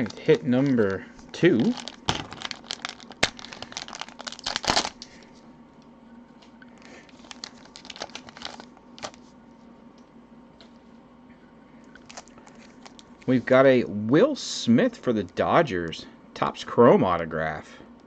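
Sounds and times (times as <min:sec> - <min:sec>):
plastic packaging crinkling: 0:00.0 - 0:05.3, 0:06.8 - 0:09.3, 0:12.0 - 0:13.3.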